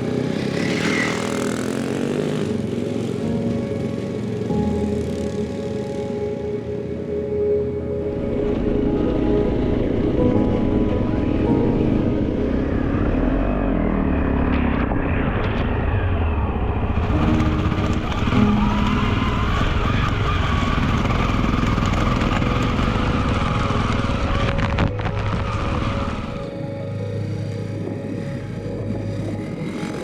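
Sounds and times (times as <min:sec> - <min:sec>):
motorcycle engine running: 0:00.0 - 0:06.0, 0:12.4 - 0:30.0.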